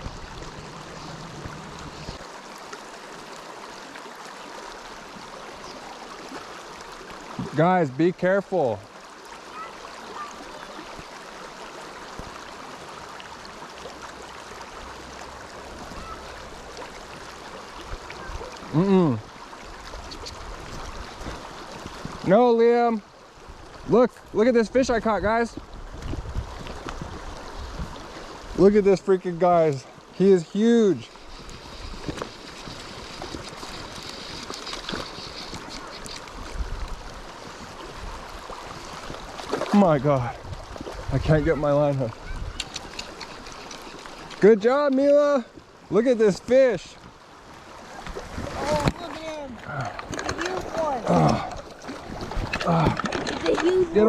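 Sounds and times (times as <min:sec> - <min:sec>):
creek water running over rocks: 0:00.0 - 0:54.0.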